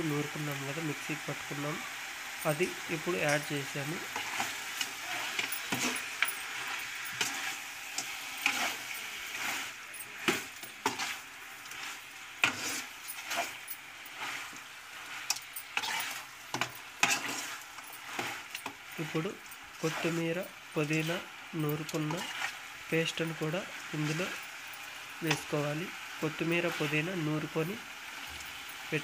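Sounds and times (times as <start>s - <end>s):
chicken sizzling in pot: 0.0s - 29.0s
metal spatula scraping pot: 3.0s - 21.2s, 21.8s - 22.6s.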